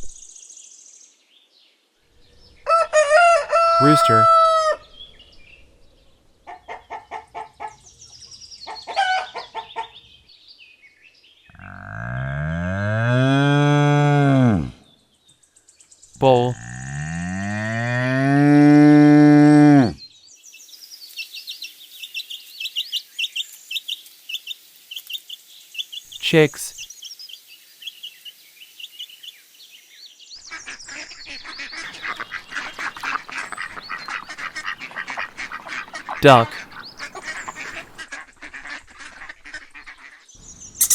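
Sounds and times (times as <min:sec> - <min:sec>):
chicks peeping: 0:30.6 - 0:38.0
rooster clucking: 0:31.8 - 0:38.0
bull mooing: 0:33.5 - 0:38.0.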